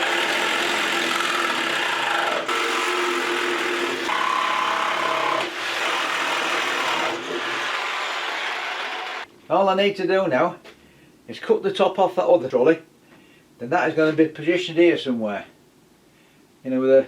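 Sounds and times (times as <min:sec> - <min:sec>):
small power tool rasping: 0:00.0 - 0:09.3.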